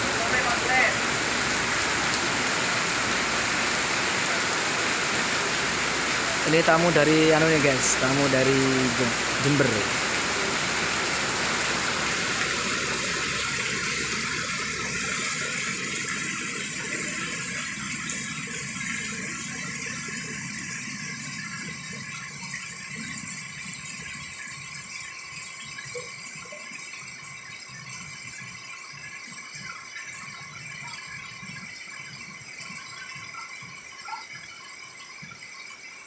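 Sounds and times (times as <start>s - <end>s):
heavy rain pouring: 0.0s - 24.4s.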